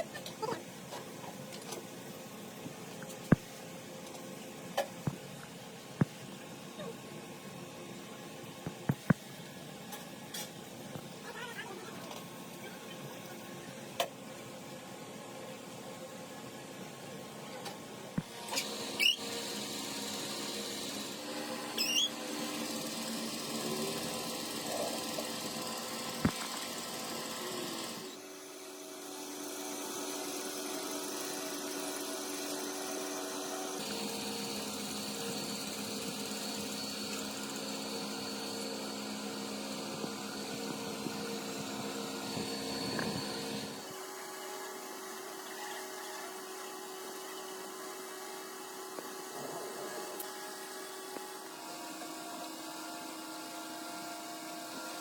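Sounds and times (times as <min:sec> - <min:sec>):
electric power tool running: 0:18.2 - 0:55.0.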